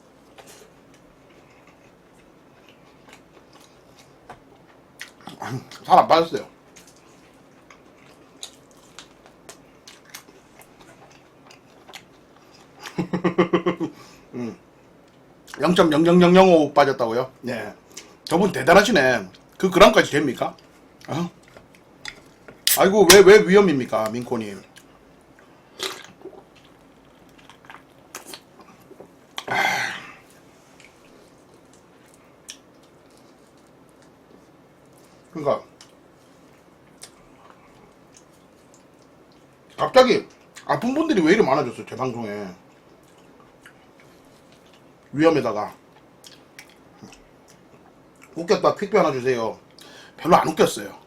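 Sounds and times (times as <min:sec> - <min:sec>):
person chewing food: 0:00.3 - 0:05.8, 0:06.7 - 0:13.0, 0:24.6 - 0:29.6, 0:30.2 - 0:40.7, 0:42.6 - 0:45.1, 0:45.8 - 0:48.4.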